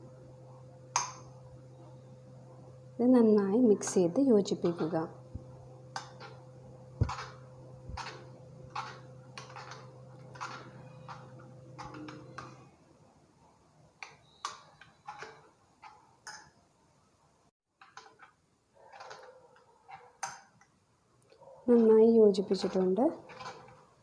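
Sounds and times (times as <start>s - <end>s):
low steady hum: 0.0s - 18.2s
spoon scraping and clinking bowl: 6.0s - 6.4s, 7.0s - 12.6s, 14.0s - 16.5s, 18.9s - 20.5s, 22.5s - 23.9s.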